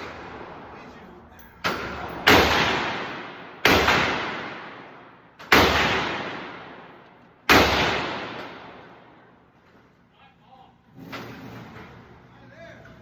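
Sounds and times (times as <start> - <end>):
gunshots with long echo: 1.6 - 9.3.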